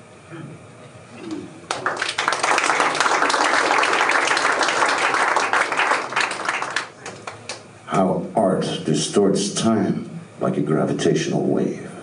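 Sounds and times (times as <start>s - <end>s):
audience applauding: 1.6s - 7.6s.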